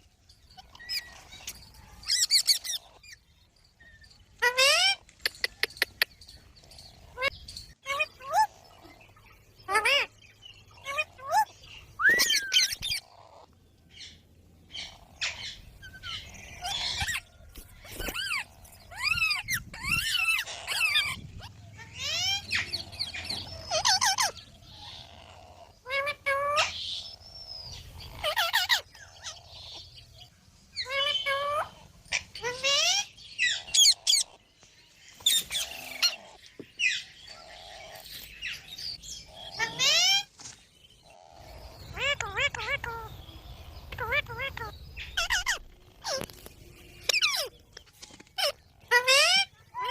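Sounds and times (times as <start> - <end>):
parrot calling: 18.2 - 26.8, 41.2 - 46.3
parrot squawking: 41.5 - 43.2, 44.0 - 46.2.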